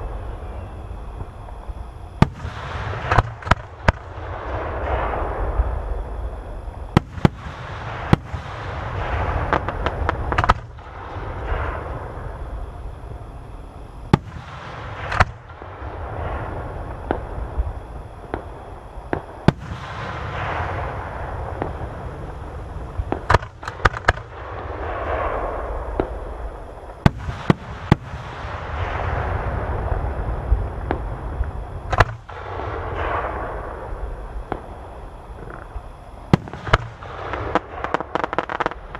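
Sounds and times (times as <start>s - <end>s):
fireworks hissing and crackling: 0.0s - 38.9s
fireworks shells bursting: 2.2s - 5.4s, 7.0s - 12.2s, 19.1s - 26.2s, 35.4s - 38.9s.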